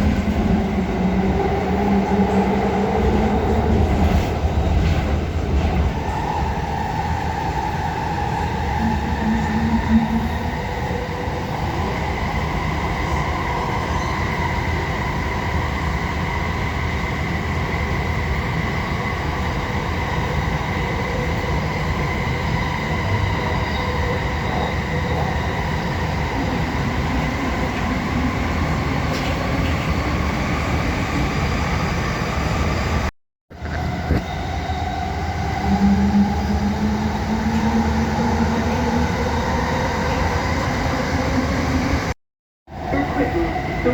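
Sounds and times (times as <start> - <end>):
train wheels rumbling on track: 16.9 - 42.1.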